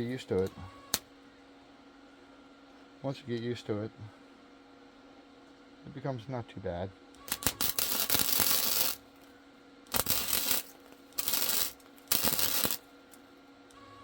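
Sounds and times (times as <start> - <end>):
welder arc crackle: 7.2 - 9.3, 9.9 - 13.2.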